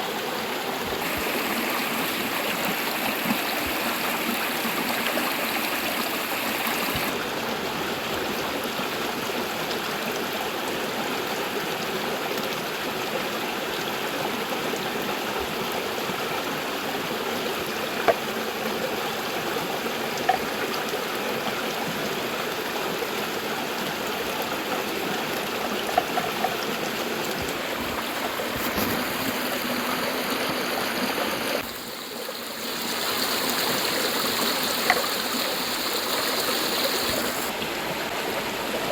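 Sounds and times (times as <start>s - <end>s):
river rushing: 0.1s - 7.6s, 26.7s - 38.9s.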